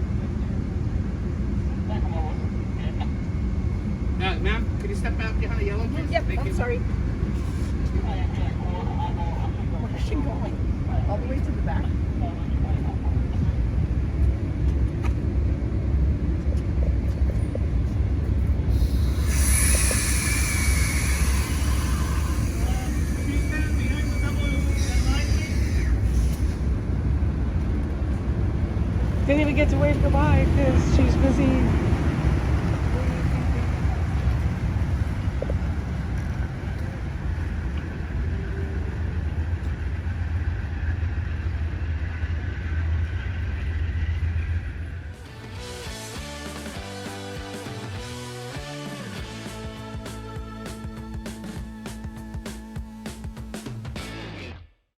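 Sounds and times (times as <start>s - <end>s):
train engine rumbling: 0.0s - 53.4s
loud hiss: 18.7s - 26.8s.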